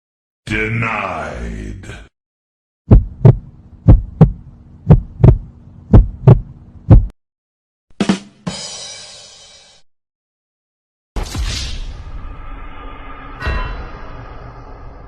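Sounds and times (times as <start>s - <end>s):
heartbeat thumps: 2.9s - 7.2s
ringing crash: 11.4s - 15.0s.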